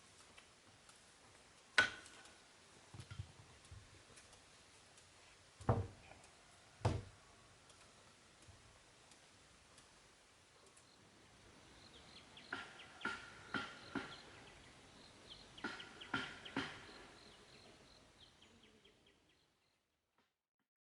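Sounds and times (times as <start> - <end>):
high chirps of birds or insects: 10.6 - 19.9
sharp ringing knocks: 12.5 - 14.3, 15.6 - 17.1.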